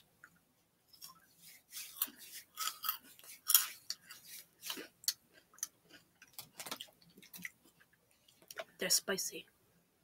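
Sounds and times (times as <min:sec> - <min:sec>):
crunchy snack chewing: 0:01.9 - 0:07.8.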